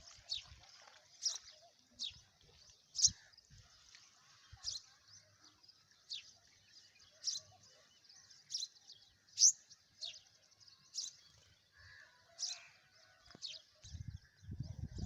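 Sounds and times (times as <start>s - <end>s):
small bird chirping: 4.5s - 11.5s.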